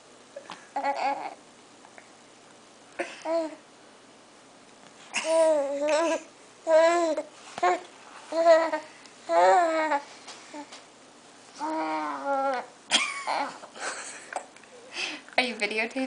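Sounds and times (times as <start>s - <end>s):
baby babbling: 0.8s - 1.4s, 3.2s - 3.6s, 5.2s - 10.7s, 11.6s - 12.7s.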